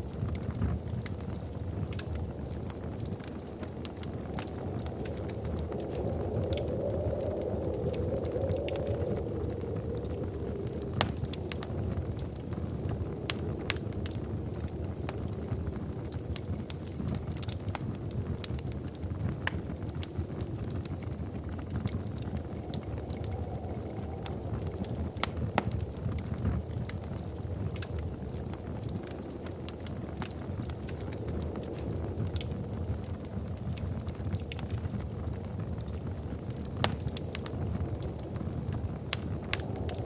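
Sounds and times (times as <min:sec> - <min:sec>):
wood fire crackling and popping: 0:00.0 - 0:40.0.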